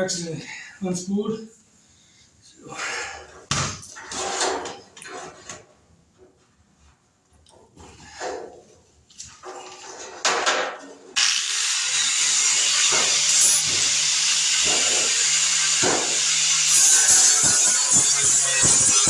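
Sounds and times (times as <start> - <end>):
angle grinder grinding steel: 11.2 - 19.0.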